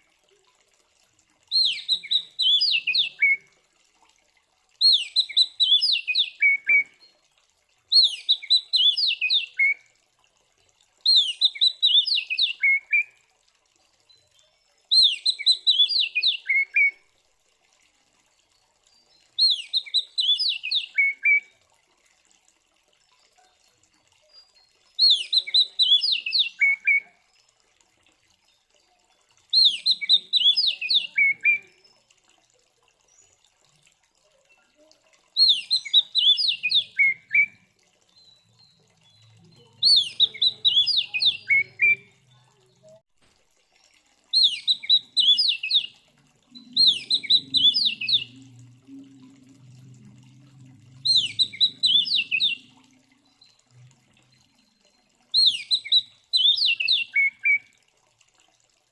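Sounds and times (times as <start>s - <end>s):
bird singing whistled phrases: 1.5s - 3.4s, 4.8s - 7.0s, 7.9s - 9.8s, 11.1s - 13.1s, 14.9s - 17.0s, 19.4s - 21.5s, 25.0s - 27.1s, 29.5s - 31.9s, 35.4s - 37.6s, 39.8s - 42.1s, 44.3s - 48.8s, 51.0s - 53.5s, 55.4s - 57.6s.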